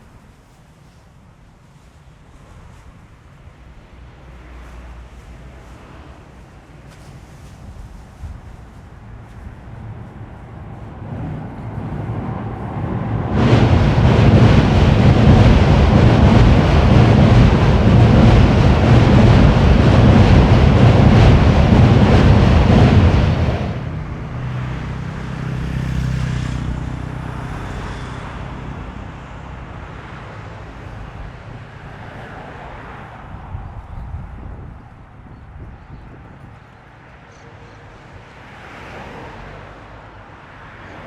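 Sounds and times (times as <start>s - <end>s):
faint rushing wind: 5.2s - 25.0s
wind buffeting microphone: 7.1s - 24.5s, 33.2s - 36.8s.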